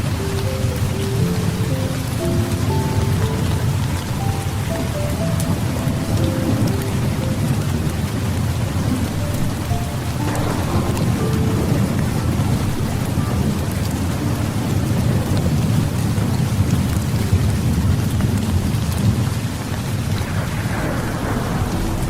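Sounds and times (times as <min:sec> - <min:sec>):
heavy rain falling: 0:00.0 - 0:22.0
low rumble of thunder: 0:10.3 - 0:22.0.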